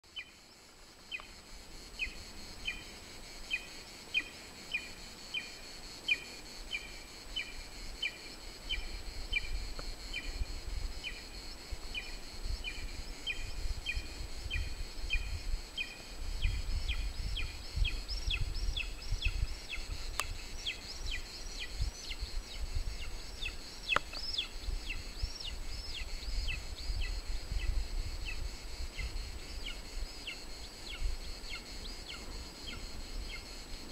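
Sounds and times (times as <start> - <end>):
wind rumble on microphone: 8.7 - 33.9
faint clicks: 20.1 - 20.3, 23.9 - 24.4.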